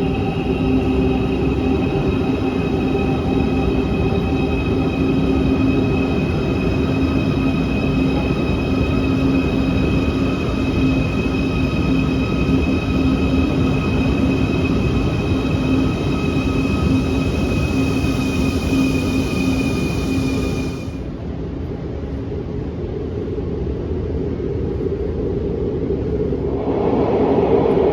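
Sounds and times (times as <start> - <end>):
steady whining tones: 0.0 - 21.1
subway train rumbling: 0.0 - 27.9.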